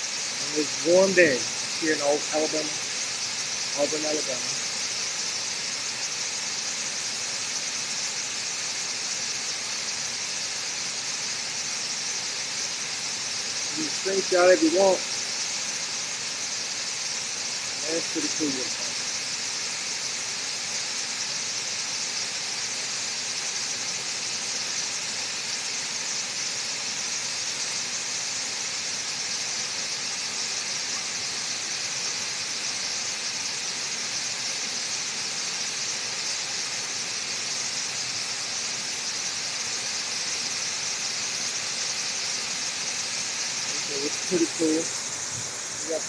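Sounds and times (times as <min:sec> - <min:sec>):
waterfall rushing: 0:43.7 - 0:46.0.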